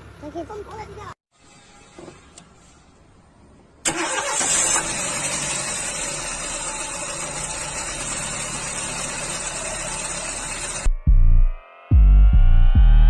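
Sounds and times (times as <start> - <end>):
road rush: 0.0 - 10.9
car engine: 3.8 - 10.9.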